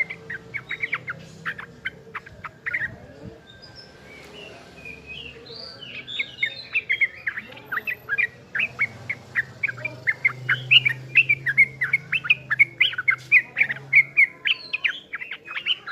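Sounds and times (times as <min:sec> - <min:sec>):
bird singing chirps and whistles: 0:00.0 - 0:02.9.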